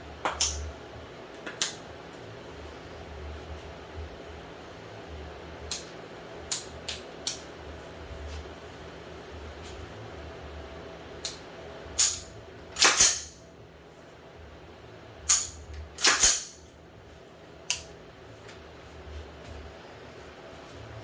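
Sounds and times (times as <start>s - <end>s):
rifle action metallic clacks: 12.8s - 13.3s, 15.3s - 16.5s.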